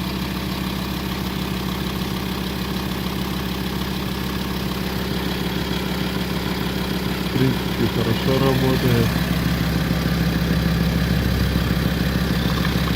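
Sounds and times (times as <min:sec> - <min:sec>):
diesel engine idling: 0:00.0 - 0:12.9.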